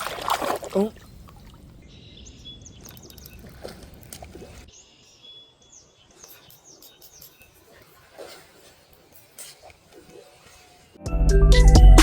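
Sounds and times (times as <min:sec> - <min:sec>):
small birds chirping: 0:00.8 - 0:11.0.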